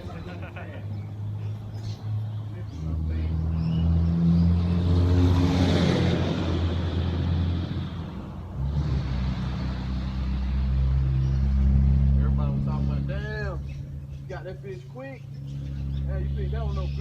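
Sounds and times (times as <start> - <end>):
vehicle passing rush: 0.0 - 17.0
engine low steady hum: 6.4 - 17.0.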